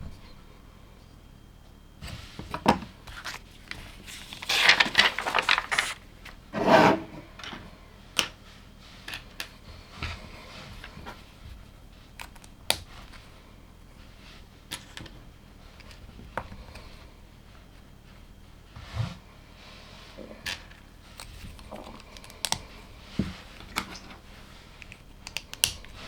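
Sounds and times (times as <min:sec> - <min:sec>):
rummaging through plastic pieces: 0:03.1 - 0:06.4.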